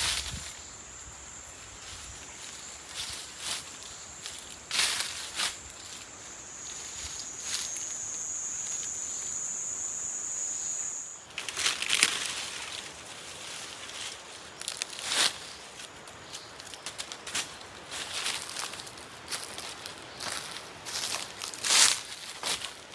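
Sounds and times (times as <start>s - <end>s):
leaves rustling and crackling: 0.0s - 22.9s
high-pitched insect buzz: 3.8s - 12.2s.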